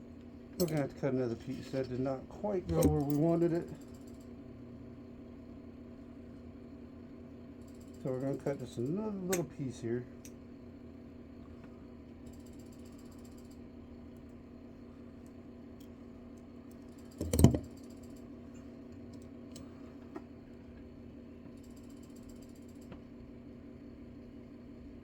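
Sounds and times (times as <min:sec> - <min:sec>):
fan humming: 0:00.0 - 0:12.2.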